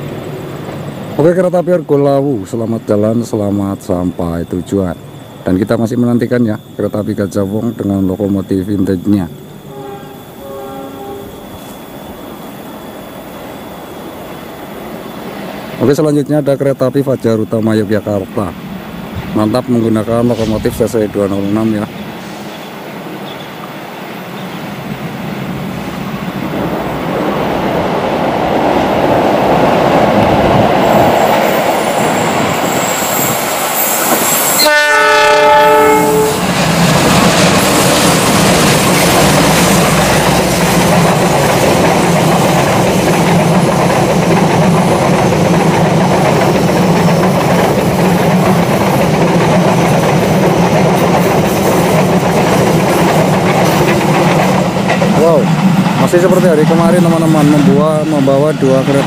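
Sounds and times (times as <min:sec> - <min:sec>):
coaches rolling over rails: 0:00.0 - 0:59.0
train horn blast: 0:09.6 - 0:11.4, 0:34.6 - 0:36.5
locomotive rumble: 0:13.3 - 0:59.0.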